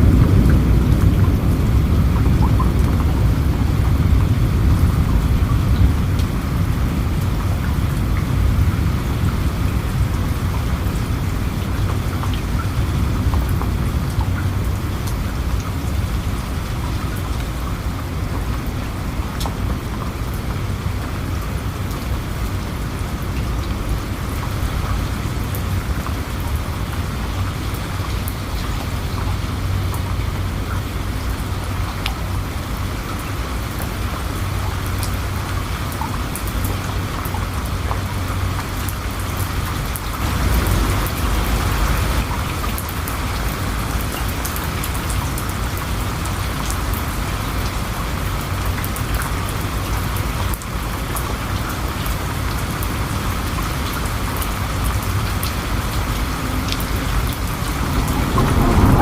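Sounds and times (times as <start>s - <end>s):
raindrops ticking on a surface: 0.0s - 59.0s
steady rain falling: 0.0s - 59.0s
low rumble: 56.1s - 59.0s.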